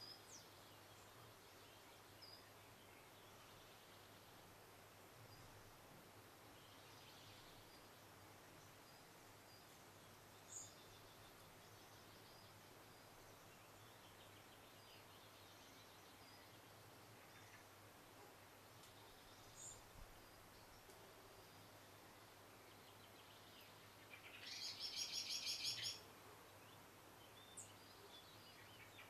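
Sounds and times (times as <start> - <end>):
distant small birds singing: 0.0 - 29.0.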